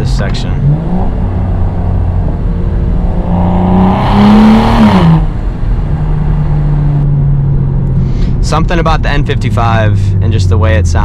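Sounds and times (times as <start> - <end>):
loud exhaust rush: 0.0 - 9.3
car engine accelerating: 0.0 - 11.0.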